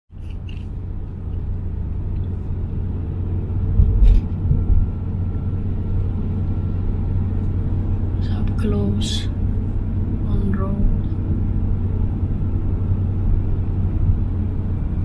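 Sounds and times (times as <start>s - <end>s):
road traffic rumble: 0.1s - 15.0s
heavy low bump: 3.6s - 5.4s.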